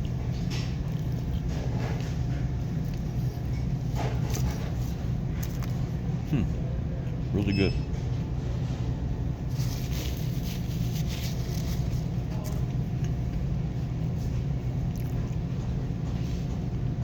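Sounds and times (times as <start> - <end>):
faint crackles and rustles: 9.5 - 16.8.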